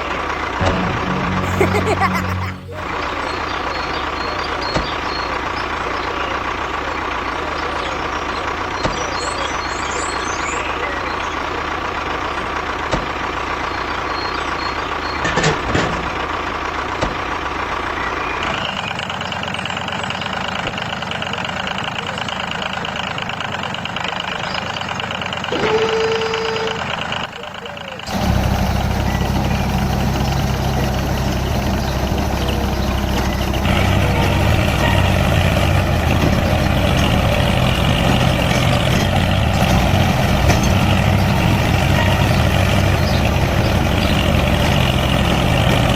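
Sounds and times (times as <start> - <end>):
small motor running: 25.5 - 26.9.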